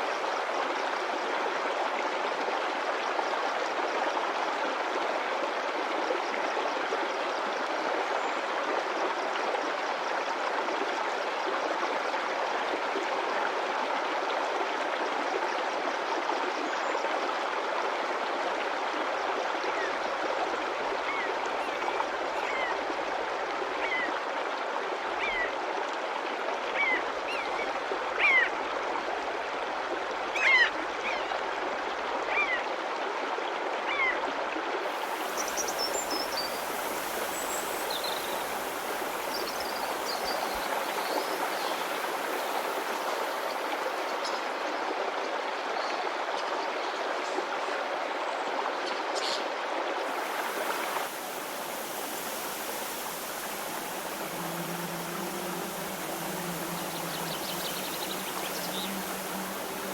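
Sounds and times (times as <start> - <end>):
stream of water flowing: 0.0 - 59.9
birds chirping: 35.0 - 43.7, 50.2 - 59.9.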